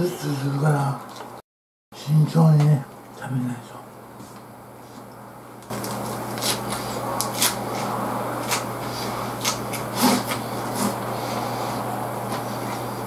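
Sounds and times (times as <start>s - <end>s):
wet munching and crunching: 5.7s - 11.1s.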